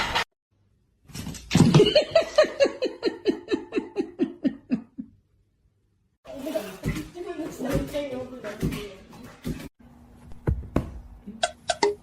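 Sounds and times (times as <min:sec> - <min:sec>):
person laughing heartily: 0:01.8 - 0:05.2.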